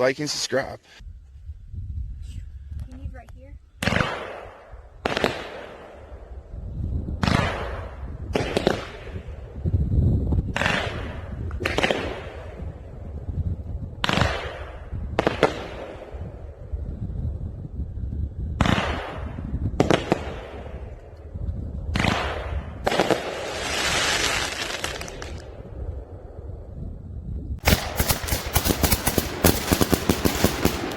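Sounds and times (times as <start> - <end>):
fireworks bangs: 21.9 - 25.5, 27.6 - 30.9
fireworks crackling: 22.8 - 25.5, 27.6 - 30.9.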